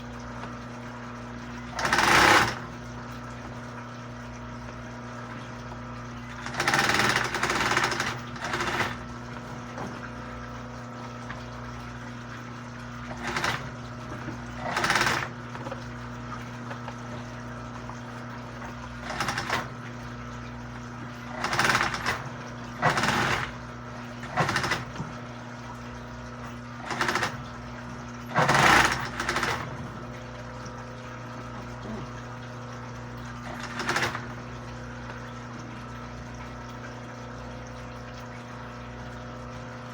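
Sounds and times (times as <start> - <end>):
motor hum: 0.0 - 39.9
sewing machine stitching: 1.7 - 2.7, 6.4 - 9.1, 13.1 - 13.8, 14.6 - 15.7, 19.0 - 19.8, 21.3 - 23.6, 24.2 - 25.1, 26.8 - 27.5, 28.3 - 29.9, 33.4 - 34.4.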